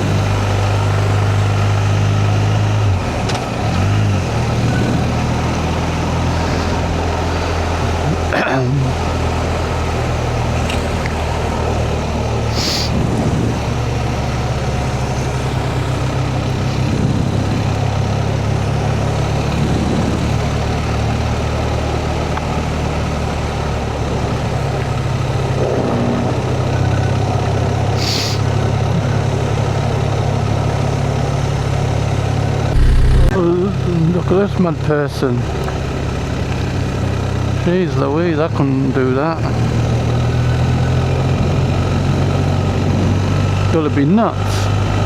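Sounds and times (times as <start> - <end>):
motorcycle engine running: 32.7 - 33.4.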